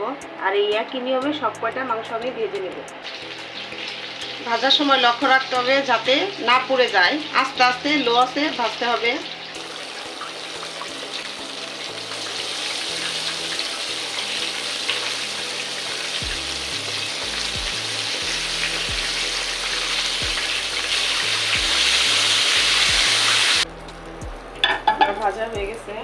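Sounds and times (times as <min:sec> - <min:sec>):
chicken deep-frying in oil: 0:03.0 - 0:23.7.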